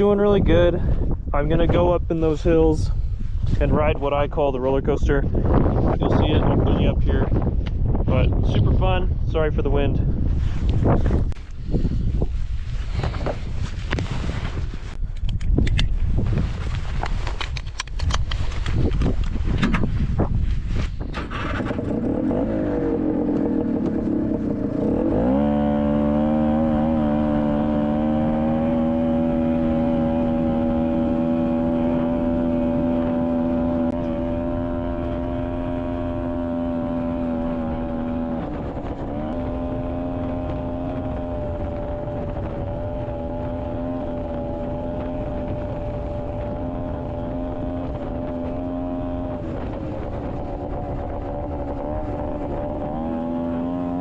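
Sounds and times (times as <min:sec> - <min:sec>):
wind rumbling on microphone: 0:00.0 - 0:54.0
two-stroke engine revving: 0:21.1 - 0:54.0.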